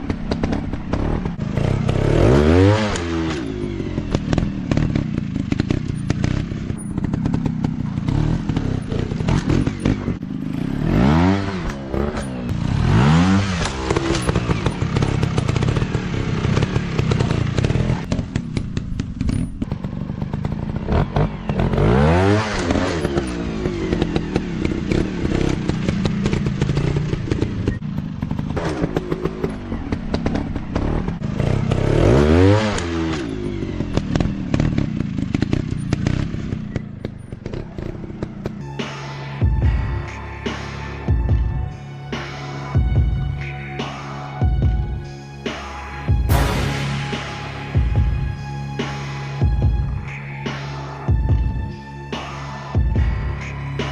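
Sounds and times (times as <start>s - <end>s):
dirt bike engines revving: 0.0s - 39.5s.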